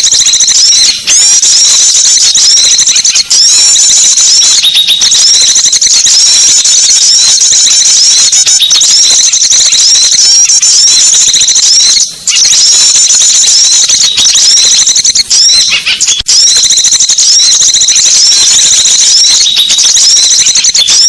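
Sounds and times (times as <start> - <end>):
songbirds chirping and twittering: 0.0 - 5.4, 6.0 - 16.2.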